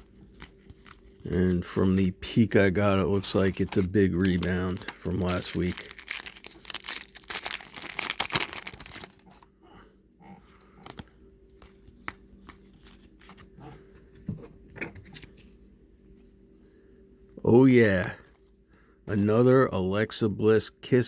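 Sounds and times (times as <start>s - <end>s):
cards clicking and rustling: 0.0s - 2.1s, 3.1s - 9.3s, 10.6s - 13.6s
foil pack tearing and crinkling: 3.2s - 9.4s.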